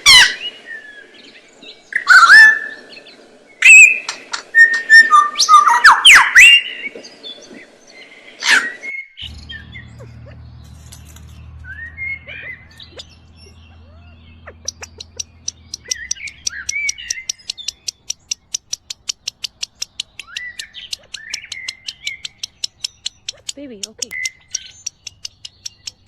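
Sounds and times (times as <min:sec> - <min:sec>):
small birds chirping and whistling: 0:00.0 - 0:26.0
low steady hum: 0:09.2 - 0:18.5
high ticking bird notes: 0:09.2 - 0:26.0.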